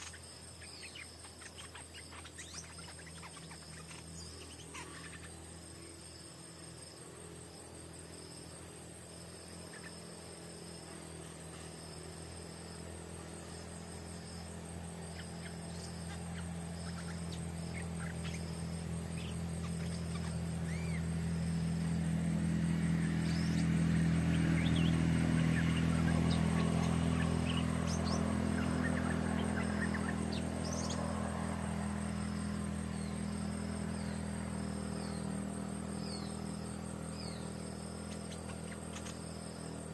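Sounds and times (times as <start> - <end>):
bird chirps: 0.0 - 6.9, 9.2 - 39.9
distant engine hum: 0.0 - 39.9
insects trilling: 0.0 - 39.9.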